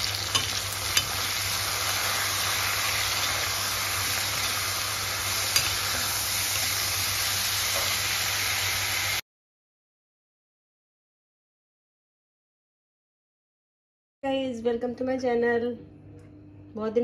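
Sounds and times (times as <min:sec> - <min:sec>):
potato wedges sizzling in a pan: 0:00.0 - 0:09.2
metal spatula stirring: 0:00.1 - 0:02.2, 0:05.3 - 0:06.2.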